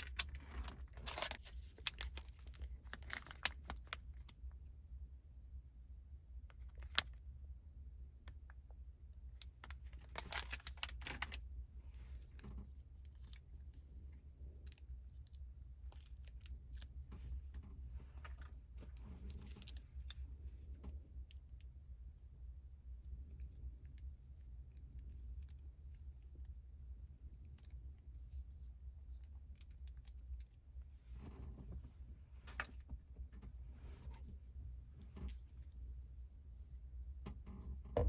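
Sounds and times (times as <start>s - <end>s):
packaging rustling: 0.0s - 4.3s, 10.0s - 11.4s.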